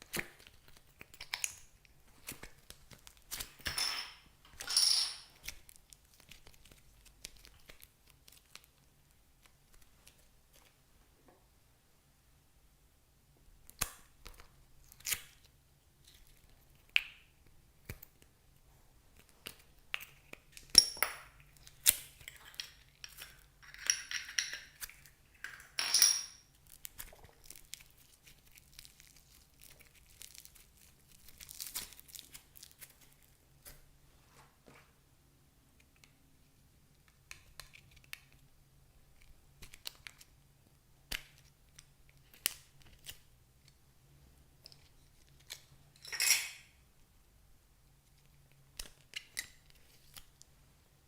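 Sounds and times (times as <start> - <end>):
plastic packaging crinkling: 26.6 - 33.4.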